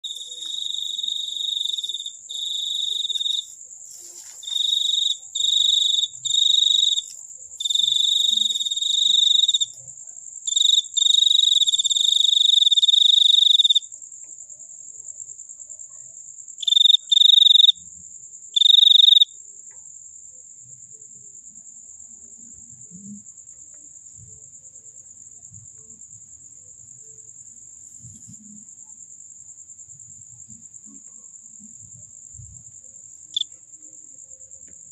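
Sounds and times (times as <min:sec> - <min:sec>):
fainter higher cricket trill: 0:00.0 - 0:09.9
loud high cricket trill: 0:00.0 - 0:14.1, 0:15.5 - 0:19.5.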